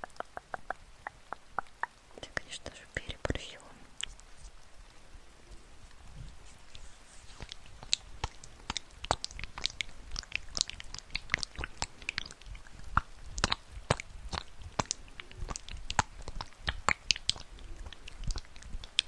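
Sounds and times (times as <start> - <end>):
sharp clicks and crackles: 6.7 - 19.0.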